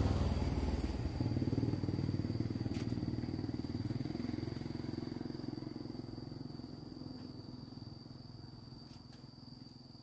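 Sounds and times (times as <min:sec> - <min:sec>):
small motorcycle engine running: 0:00.0 - 0:07.3
thin steady high whine: 0:00.0 - 0:10.0.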